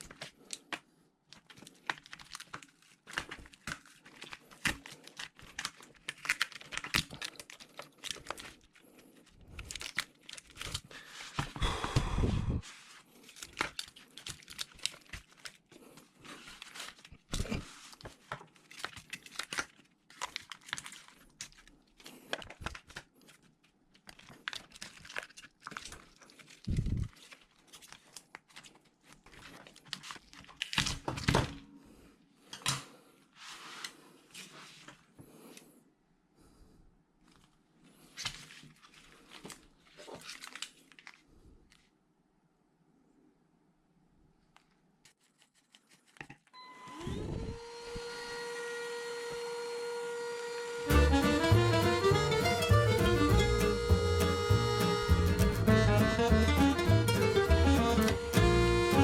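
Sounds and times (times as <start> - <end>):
thin plastic crinkling and tearing: 0.0 - 11.6, 12.6 - 31.6, 37.2 - 41.9.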